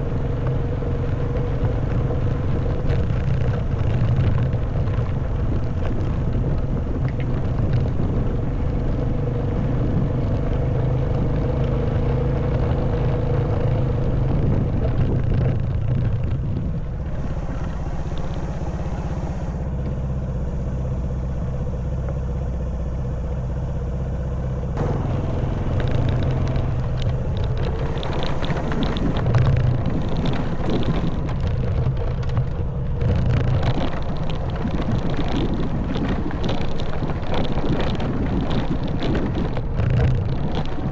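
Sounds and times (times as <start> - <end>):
wind noise: 0.0 - 21.9, 24.8 - 40.9
motorbike engine running: 0.0 - 40.9
dense rattle: 24.7 - 40.9.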